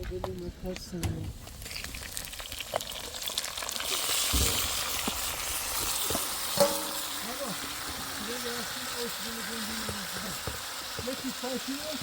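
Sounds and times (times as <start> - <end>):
steady high hiss: 5.0 - 12.0.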